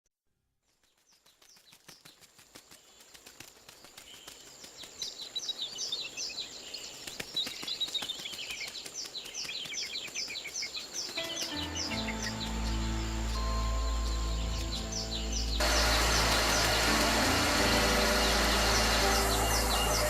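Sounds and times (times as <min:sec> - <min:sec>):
birds chirping: 0:02.8 - 0:20.0
steady high whine: 0:14.6 - 0:20.0.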